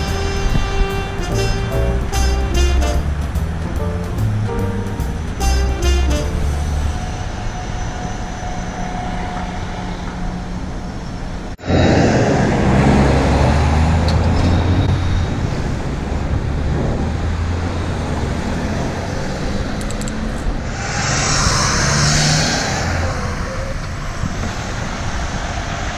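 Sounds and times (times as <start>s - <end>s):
truck engines running: 0.0s - 7.4s
city street traffic: 0.0s - 25.9s
hiss: 20.6s - 25.9s.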